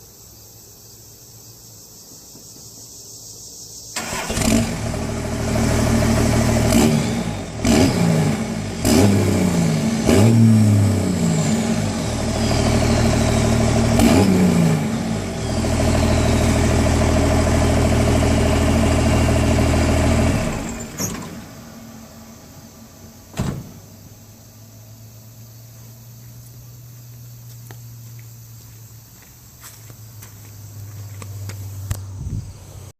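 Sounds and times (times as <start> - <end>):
diesel engine revving: 4.0 - 23.3.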